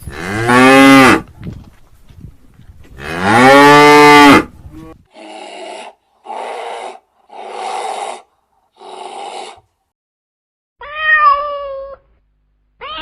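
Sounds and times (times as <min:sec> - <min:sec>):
animal snorting: 0:05.1 - 0:09.6.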